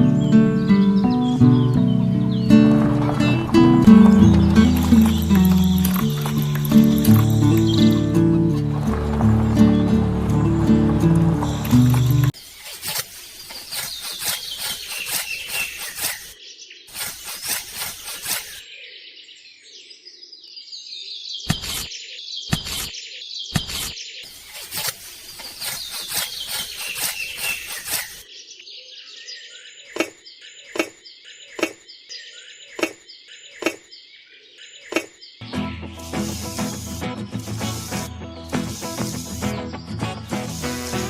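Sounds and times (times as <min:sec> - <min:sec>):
birds chirping: 0:00.0 - 0:41.0
regular tapping: 0:02.7 - 0:12.4.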